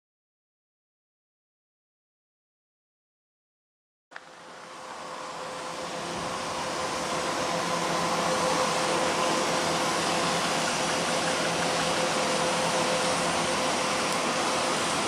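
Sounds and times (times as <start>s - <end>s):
train approaching rushing: 4.3s - 15.0s.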